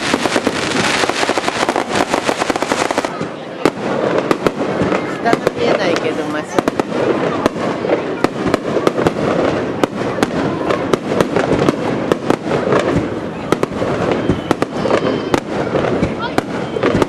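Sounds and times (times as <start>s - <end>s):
continuous din: 0.0s - 17.0s
fireworks bangs and cracks: 0.0s - 17.0s.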